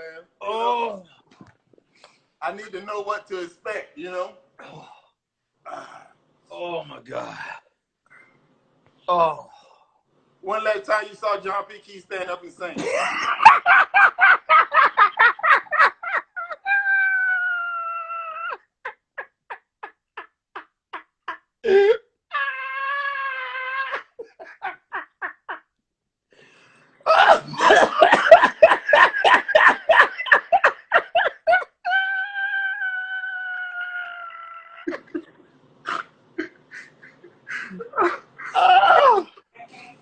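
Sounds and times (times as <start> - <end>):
person laughing hard: 12.8 - 25.7, 27.1 - 32.8, 34.0 - 35.4, 36.4 - 39.3.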